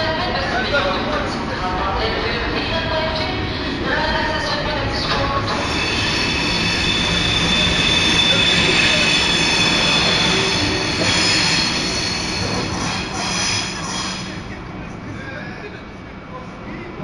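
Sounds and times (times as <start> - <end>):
train wheels rumbling on rail: 0.0 - 17.0
high held squeal: 5.5 - 14.4.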